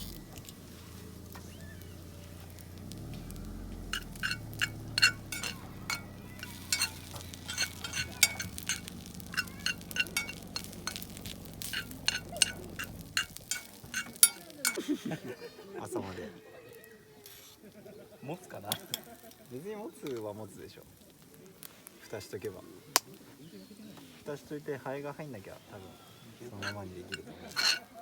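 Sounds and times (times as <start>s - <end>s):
utensils clinking on cookware: 0.0s - 15.2s, 26.5s - 28.0s.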